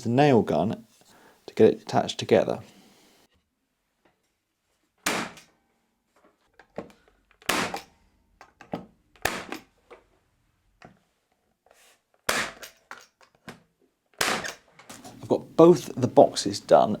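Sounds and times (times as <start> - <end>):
nail gun shots: 5.0 - 5.5, 7.4 - 7.9, 9.2 - 9.7, 12.3 - 12.8, 14.2 - 14.7.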